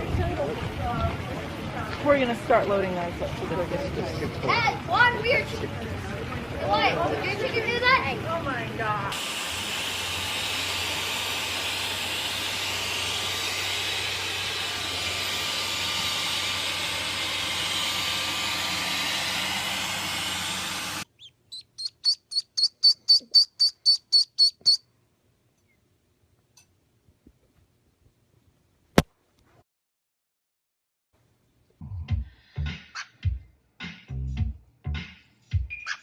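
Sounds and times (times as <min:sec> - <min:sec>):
steady hiss: 0:09.2 - 0:21.0
small bird chirping: 0:21.0 - 0:24.8, 0:35.6 - 0:36.0.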